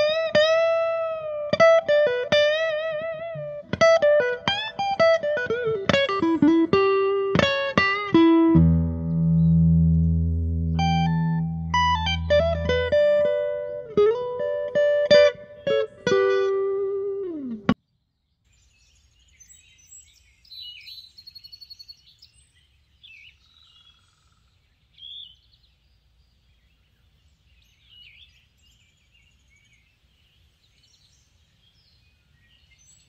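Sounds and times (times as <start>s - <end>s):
faint songbird calls: 17.3s - 33.0s.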